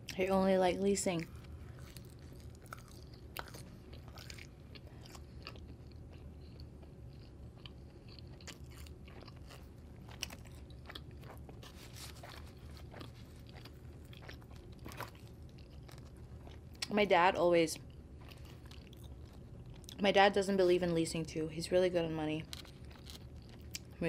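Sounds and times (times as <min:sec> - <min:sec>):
faint low hum: 0:00.0 - 0:24.0
chewing pizza: 0:01.1 - 0:17.1, 0:17.8 - 0:20.1, 0:22.4 - 0:24.0.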